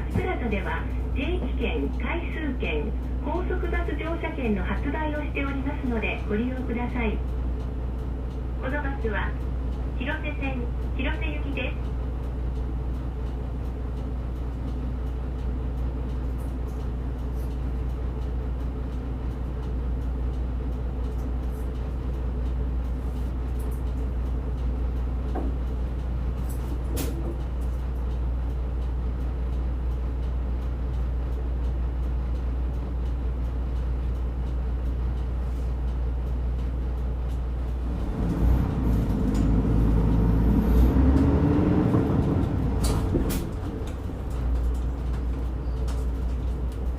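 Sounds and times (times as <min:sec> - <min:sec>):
bus diesel engine running: 0:00.0 - 0:46.9.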